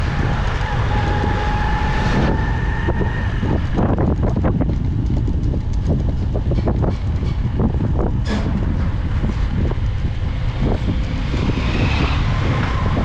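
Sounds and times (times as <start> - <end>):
motorcycle engine rumble: 0.0 - 13.0
wind buffeting microphone: 0.0 - 13.0.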